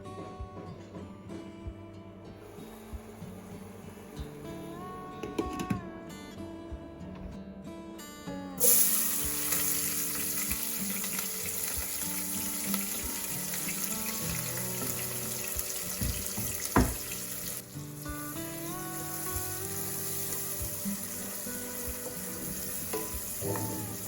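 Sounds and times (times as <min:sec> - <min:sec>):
light background music: 0:00.0 - 0:24.0
food sizzling in hot oil: 0:08.6 - 0:24.0
knock: 0:16.0 - 0:17.1.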